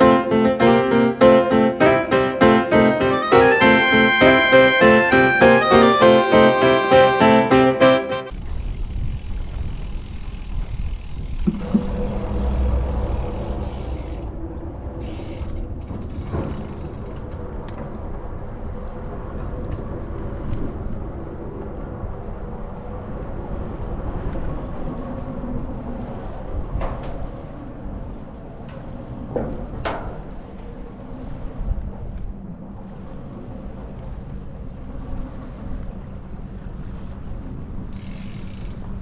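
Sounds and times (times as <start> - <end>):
bicycle road and wind rumble: 8.3 - 22.7, 37.0 - 39.0.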